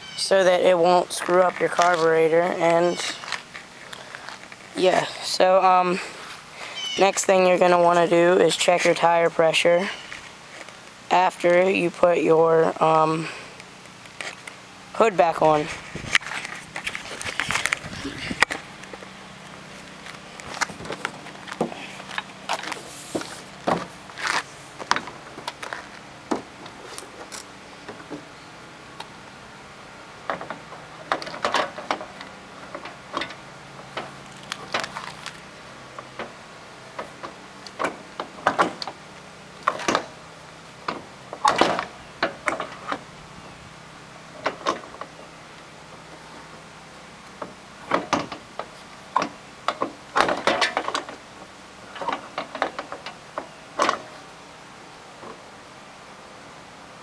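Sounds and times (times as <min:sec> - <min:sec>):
tractor hood clunking and rattling: 0:20.4 - 0:28.3, 0:30.2 - 0:35.2, 0:35.9 - 0:39.0, 0:39.6 - 0:40.2, 0:40.8 - 0:43.1, 0:44.4 - 0:45.2, 0:47.4 - 0:51.2, 0:51.9 - 0:54.2.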